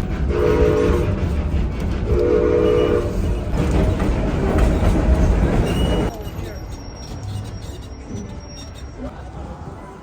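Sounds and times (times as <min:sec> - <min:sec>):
train rumbling: 0:00.0 - 0:10.0
train whistle blasts: 0:02.1 - 0:03.2.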